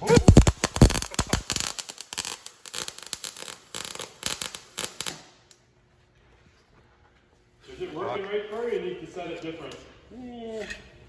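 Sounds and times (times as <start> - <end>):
welding arc crackling: 0.0 - 5.6.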